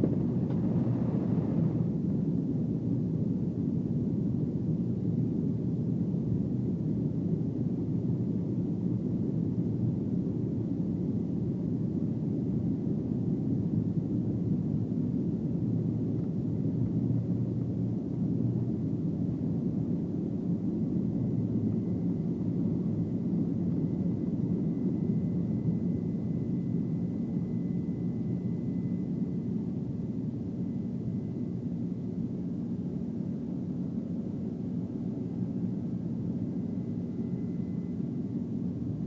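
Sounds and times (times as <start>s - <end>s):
jet engines rumbling in cabin: 0.0s - 4.5s.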